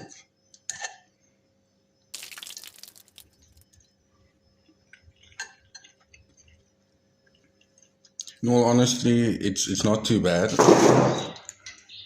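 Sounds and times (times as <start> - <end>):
quiet chewing: 2.5 - 8.4.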